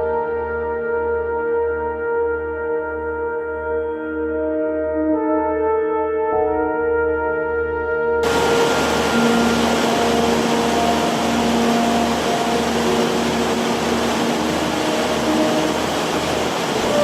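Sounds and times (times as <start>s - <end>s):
soft ambient music: 0.0s - 17.0s
waterfall rushing: 8.2s - 17.0s.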